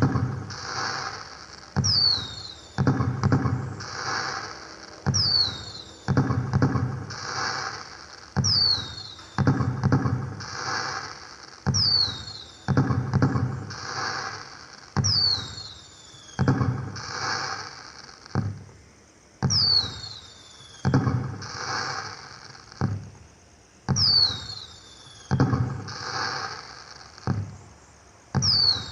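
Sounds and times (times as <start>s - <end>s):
firework bangs: 0.0s - 18.8s, 19.4s - 23.2s, 23.9s - 28.9s
firework crackling: 0.0s - 18.8s, 19.4s - 23.3s, 23.9s - 27.8s, 28.4s - 28.9s
falling whistle: 1.8s - 2.8s, 4.1s - 6.2s, 8.4s - 9.5s, 11.7s - 12.6s, 15.0s - 17.1s, 19.4s - 21.2s, 23.9s - 26.7s, 28.4s - 28.9s.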